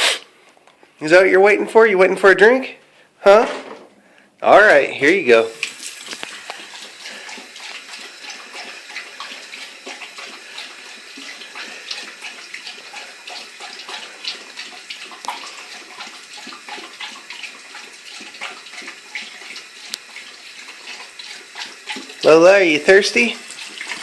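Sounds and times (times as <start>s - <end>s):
faucet running into sink: 5.0s - 24.0s
water drips and splashes: 5.0s - 24.0s.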